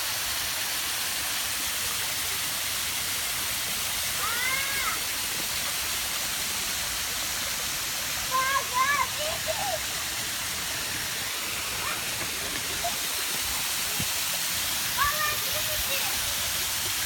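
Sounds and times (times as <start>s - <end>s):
waterfall rushing water: 0.0s - 17.0s.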